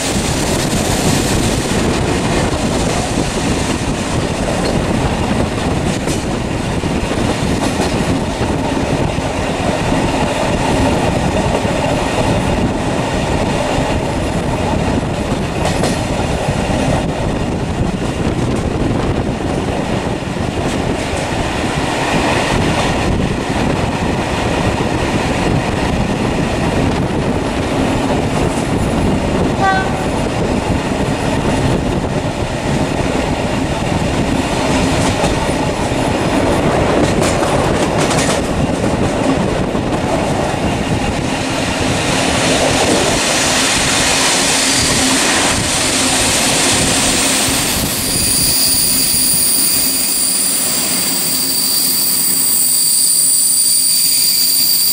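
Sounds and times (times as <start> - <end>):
high squealing tones: 47.1 - 54.9.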